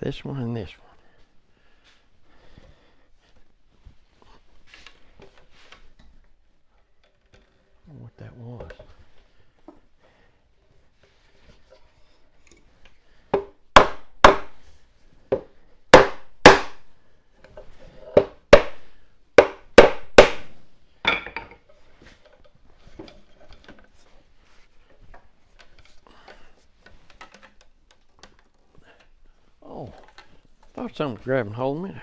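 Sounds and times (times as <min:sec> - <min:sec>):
faint handling noise: 0:00.0 - 0:13.4, 0:21.0 - 0:32.0
sharp knocks on wood: 0:13.3 - 0:14.6, 0:15.3 - 0:16.8, 0:18.2 - 0:18.8, 0:19.4 - 0:21.4.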